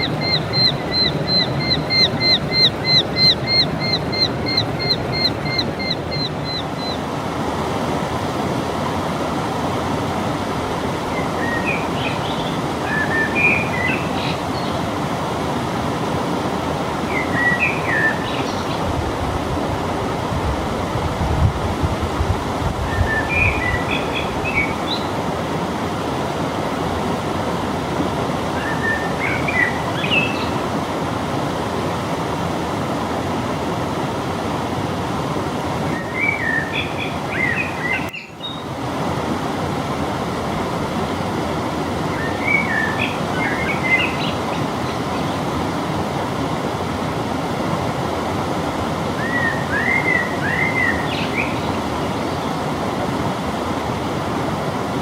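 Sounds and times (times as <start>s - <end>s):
songbird twittering: 0.0s - 7.0s, 17.2s - 25.1s
steady rushing noise: 17.7s - 28.4s.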